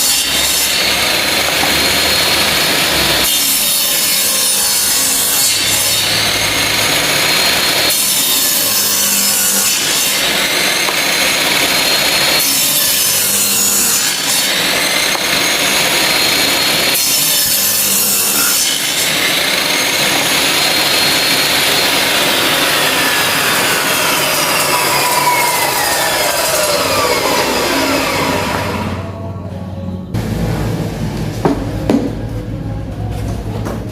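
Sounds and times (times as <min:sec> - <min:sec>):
circular saw running under load: 0:00.0 - 0:29.1
high whine falling in pitch: 0:20.3 - 0:32.9.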